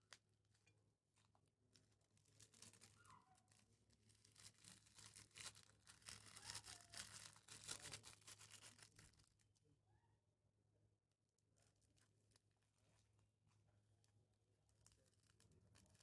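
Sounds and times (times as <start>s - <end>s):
crunchy slime crackling and popping: 2.3s - 9.3s.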